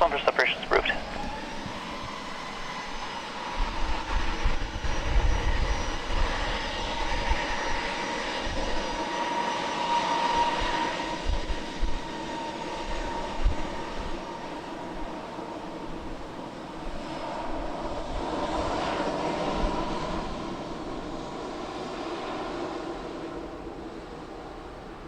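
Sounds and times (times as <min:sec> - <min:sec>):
jet engines roaring: 0:00.0 - 0:25.0
wind on microphone: 0:01.2 - 0:09.0, 0:10.4 - 0:12.1, 0:12.8 - 0:14.2.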